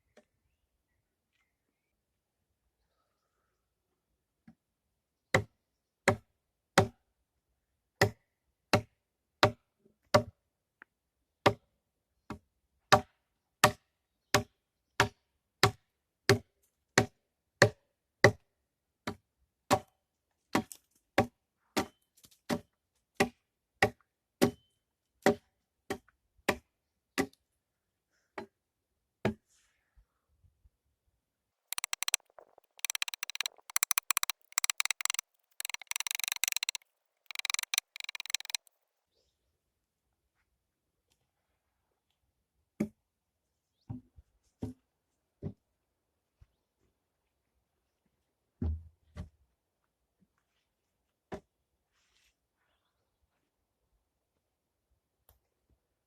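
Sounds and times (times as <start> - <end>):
rapid dense clatter: 31.8 - 38.6.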